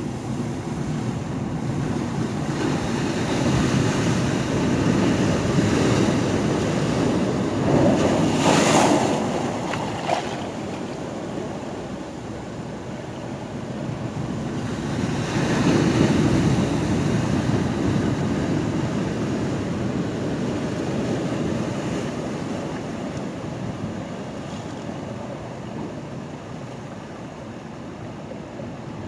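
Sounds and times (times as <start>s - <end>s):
ocean waves surging: 0.0s - 29.0s.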